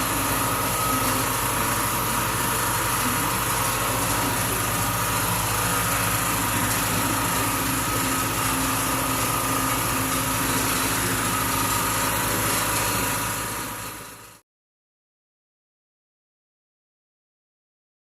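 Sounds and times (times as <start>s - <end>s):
machine humming steadily: 0.0s - 14.4s.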